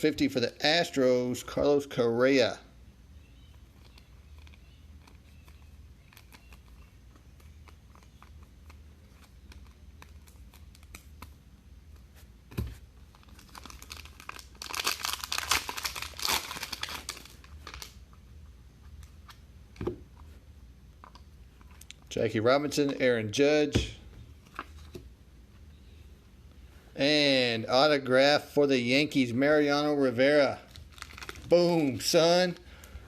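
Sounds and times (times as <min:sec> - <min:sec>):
plastic wrapping crinkling and tearing: 0:13.1 - 0:18.0, 0:30.6 - 0:32.6.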